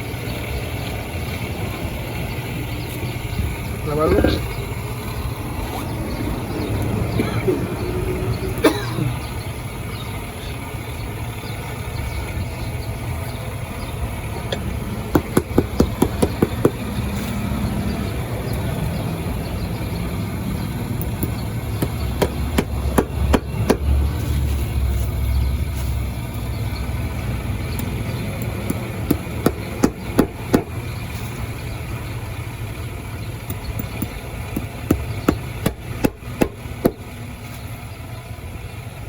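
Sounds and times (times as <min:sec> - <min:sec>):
steady low hum: 0:00.0 - 0:39.0
hammer striking nails: 0:15.1 - 0:16.8, 0:21.2 - 0:23.9, 0:28.4 - 0:30.8, 0:33.5 - 0:37.0.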